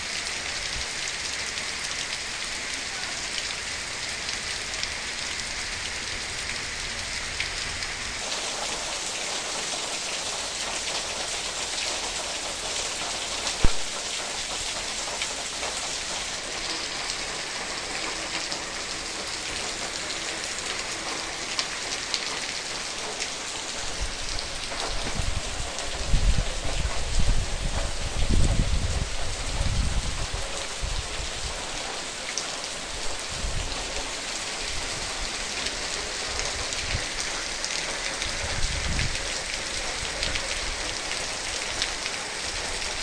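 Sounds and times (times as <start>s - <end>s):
heavy rain on leaves: 0.0s - 43.0s
sharp knock: 13.6s - 13.9s.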